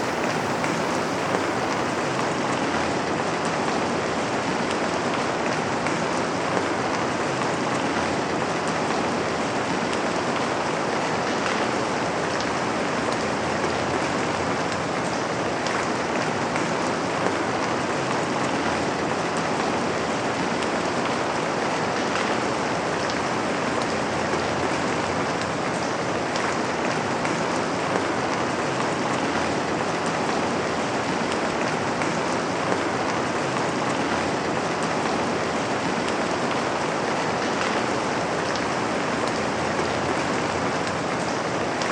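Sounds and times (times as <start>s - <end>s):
raindrops ticking on surface: 0.0s - 2.7s
rain falling: 0.0s - 41.9s.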